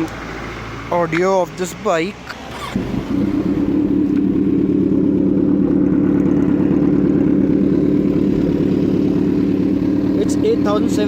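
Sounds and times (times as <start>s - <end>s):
motorcycle engine idling: 2.6s - 11.0s.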